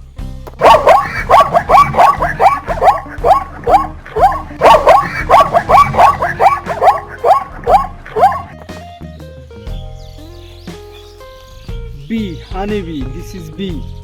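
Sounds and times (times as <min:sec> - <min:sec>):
zebra barking: 0:00.6 - 0:08.7.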